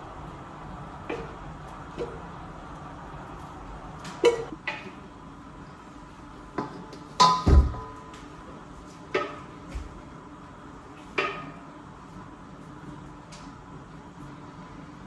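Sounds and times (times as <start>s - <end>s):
pots and dishes clinking: 4.1s - 5.0s, 6.6s - 8.3s, 11.1s - 11.7s.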